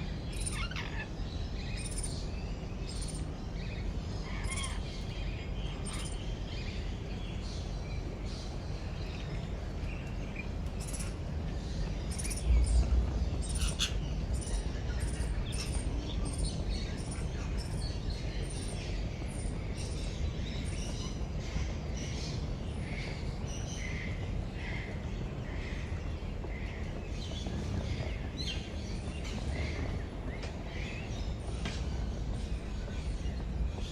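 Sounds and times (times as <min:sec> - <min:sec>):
many birds chirping: 0:00.0 - 0:33.9
low rumble: 0:11.1 - 0:17.6.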